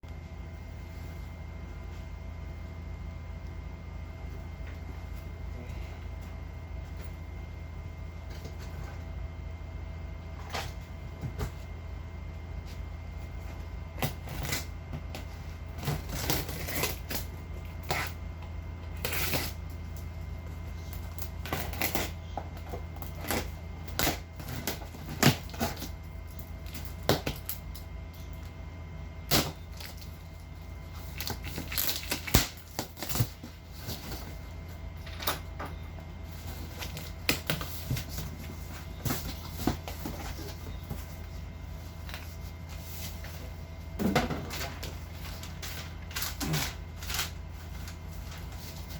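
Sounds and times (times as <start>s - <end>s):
steady low hum: 0.0s - 48.9s
boxes and packaging handled: 12.6s - 18.2s, 18.8s - 28.6s, 29.2s - 48.9s.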